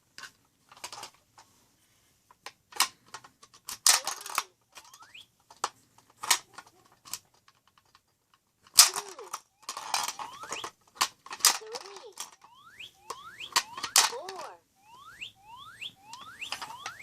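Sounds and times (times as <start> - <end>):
plastic toy clicking and clattering: 0.1 - 1.5, 2.3 - 14.6, 16.0 - 17.0
rising electronic chirps: 4.8 - 5.3, 10.2 - 10.7, 12.4 - 13.9, 14.7 - 17.0.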